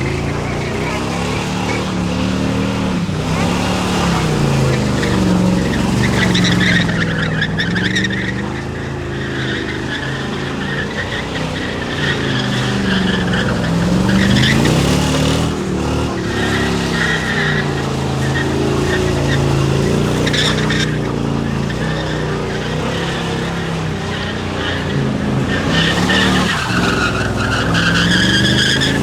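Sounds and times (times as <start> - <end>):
car engine revving: 0.0 - 29.0
tires squealing: 0.0 - 29.0.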